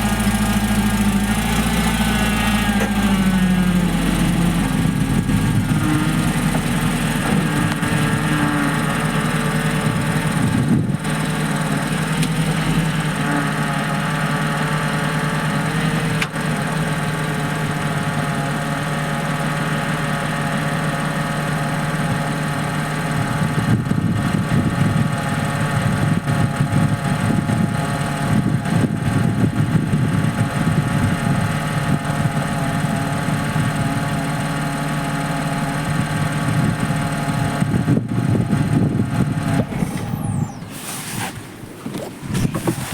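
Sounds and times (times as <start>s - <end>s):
car engine idling: 0.0s - 42.9s
high-pitched power-steering whine: 35.9s - 42.6s.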